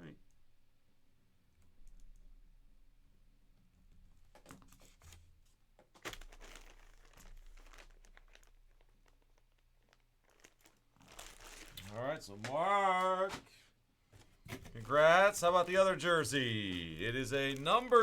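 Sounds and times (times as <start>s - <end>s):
packaging crinkling: 5.8s - 12.6s, 14.4s - 18.0s.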